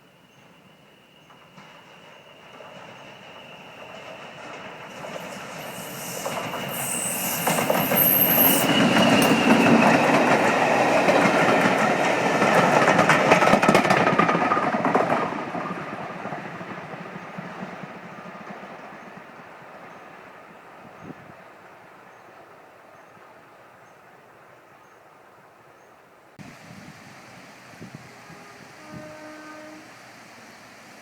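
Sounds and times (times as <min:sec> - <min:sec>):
high wheel squeal: 0:01.2 - 0:10.1
train wheels clattering: 0:01.2 - 0:20.0.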